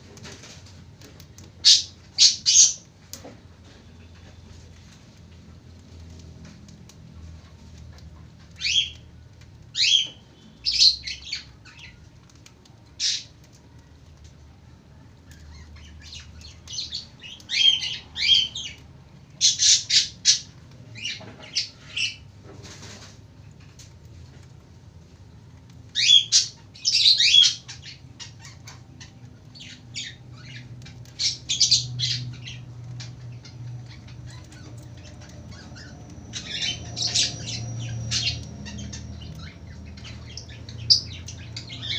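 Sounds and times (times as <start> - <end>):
lovebird chirping and squawking: 1.6 - 2.9, 8.5 - 9.1, 9.7 - 12.0, 15.4 - 18.8, 19.4 - 22.2, 25.9 - 41.9.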